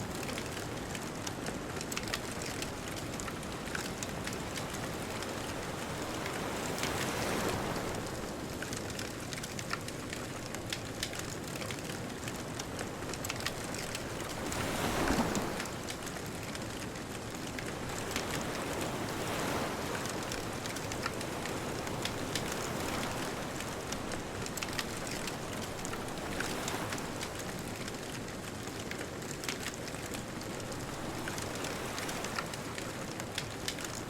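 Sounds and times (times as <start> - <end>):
ocean waves: 0.0 - 34.0
bonfire crackling and popping: 0.1 - 7.1, 8.5 - 34.0.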